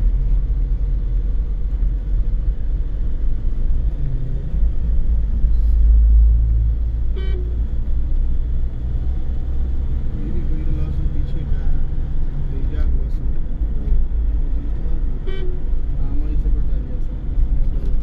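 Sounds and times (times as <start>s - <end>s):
car engine and tyres rumbling: 0.0s - 18.0s
car horn toot: 7.1s - 7.6s, 15.2s - 15.6s.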